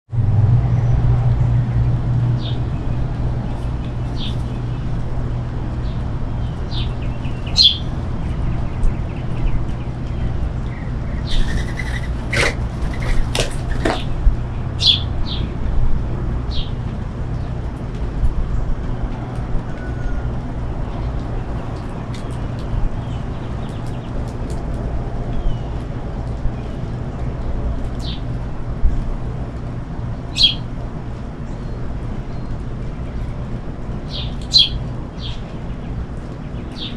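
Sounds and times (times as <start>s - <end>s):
low rumble: 0.1s - 13.3s
finches chirping: 11.1s - 14.1s
wings flapping: 11.3s - 14.2s.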